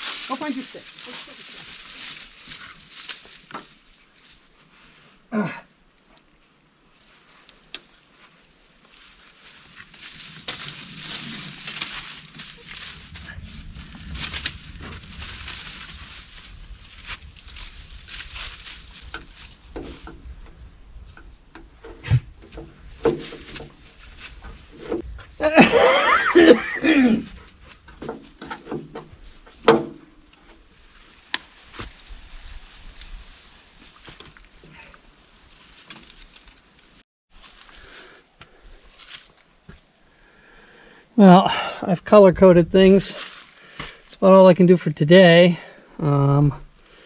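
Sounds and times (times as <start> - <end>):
metallic clinks and jingling: 0.4 - 4.6, 6.9 - 21.9, 25.0 - 37.0.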